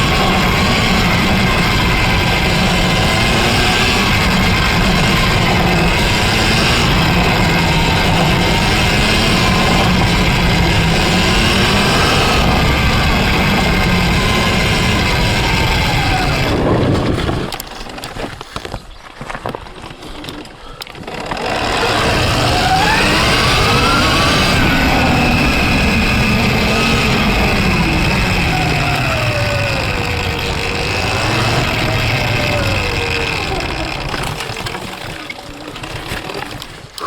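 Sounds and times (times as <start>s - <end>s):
electric motor whine: 0.0s - 17.6s, 21.0s - 35.2s
drivetrain and riding noise: 0.0s - 37.0s
scattered clicks and knocks: 28.1s - 37.0s.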